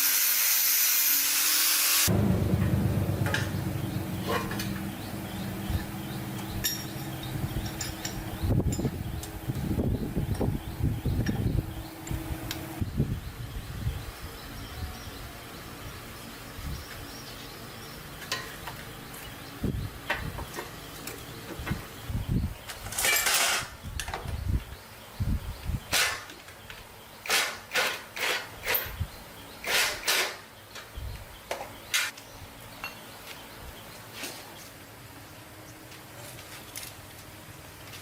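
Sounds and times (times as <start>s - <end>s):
knocks and clinks of parts: 4.2s - 9.4s, 22.7s - 24.4s.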